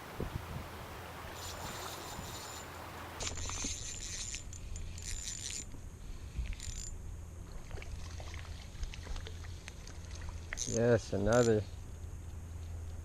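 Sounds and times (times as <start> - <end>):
spinning reel whirring: 1.4 - 5.8, 6.4 - 7.0, 10.6 - 11.6.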